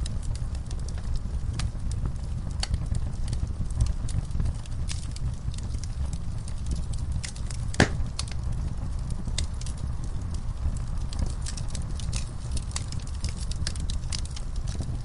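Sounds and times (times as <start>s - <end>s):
fire pops: 0.0s - 15.0s
wood fire crackling: 0.0s - 15.0s.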